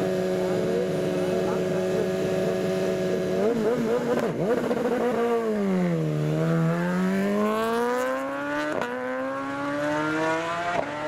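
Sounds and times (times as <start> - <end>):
motorcycle accelerating hard: 0.0 - 11.0.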